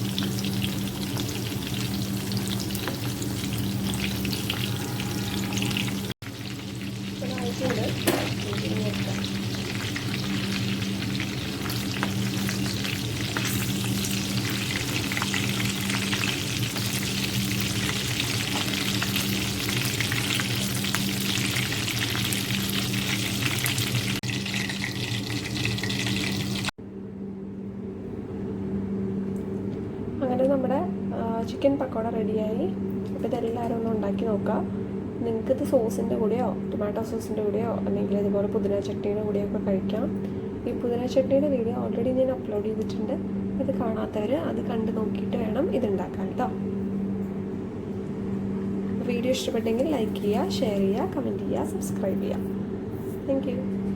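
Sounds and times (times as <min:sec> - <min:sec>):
food frying in oil: 0:00.0 - 0:26.8.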